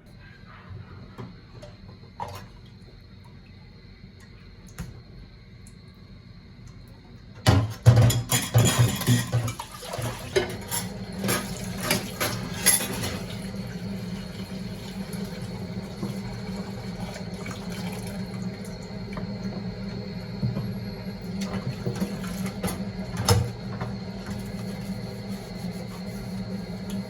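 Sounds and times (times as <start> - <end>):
dishes and cutlery clattering: 7.8 - 9.6, 10.4 - 13.2
water running: 8.3 - 27.0
steady low hum: 10.6 - 27.0.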